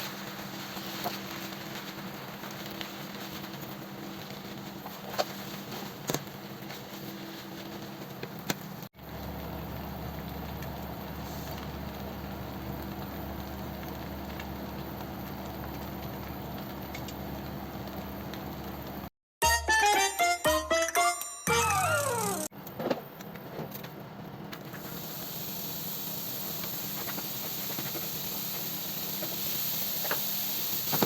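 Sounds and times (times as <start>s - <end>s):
food sizzling in a frying pan: 0.0s - 7.7s, 24.8s - 31.0s.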